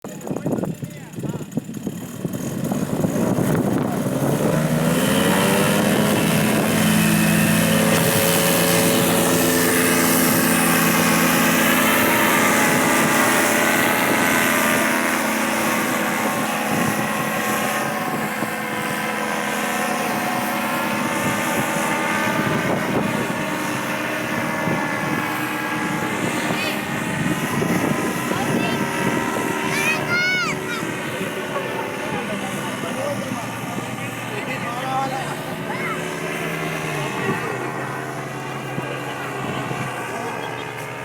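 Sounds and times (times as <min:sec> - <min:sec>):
paramotor engine revving: 0:00.1 - 0:41.0.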